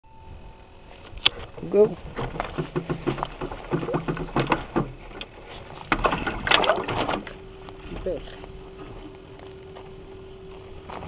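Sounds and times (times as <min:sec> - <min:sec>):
small knocks: 0:02.1 - 0:07.4
water splashing against hull: 0:02.1 - 0:07.4.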